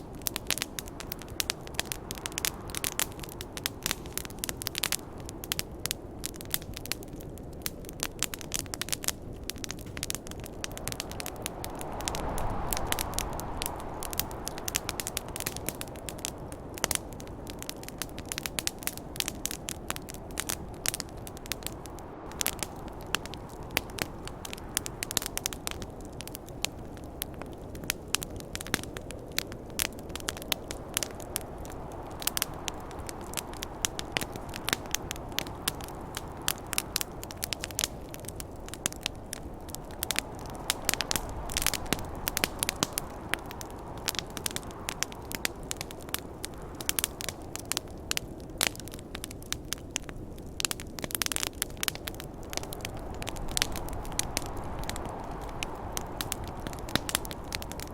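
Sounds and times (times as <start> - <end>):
campfire crackling: 0.0 - 57.9
wind rushing: 9.6 - 17.7, 30.8 - 45.3.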